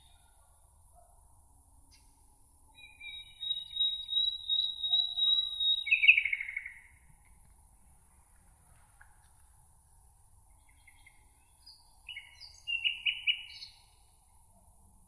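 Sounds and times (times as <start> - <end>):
faint high background hiss: 0.0 - 15.0
songbird trilling: 2.8 - 6.8, 12.1 - 13.8.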